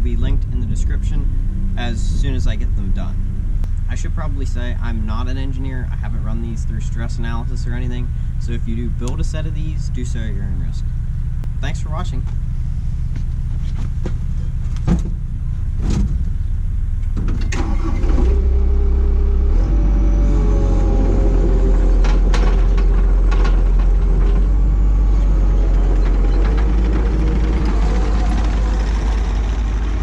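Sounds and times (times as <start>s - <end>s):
steady whine rising in pitch: 0.0s - 7.7s, 18.1s - 30.0s
skid steer engine rumbling: 0.0s - 30.0s
sharp clunks: 14.0s - 15.2s, 15.8s - 16.3s.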